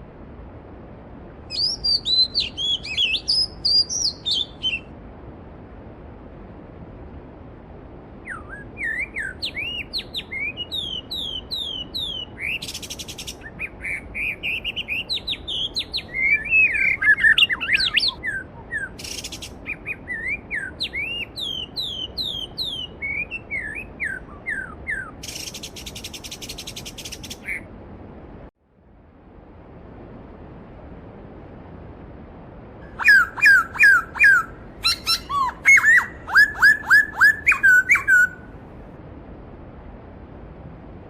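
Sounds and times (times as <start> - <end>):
songbirds whistling: 1.5 - 4.9, 8.2 - 27.7, 32.9 - 38.5
buzzy bird trills: 32.9 - 38.4
bird warbling: 32.9 - 38.5.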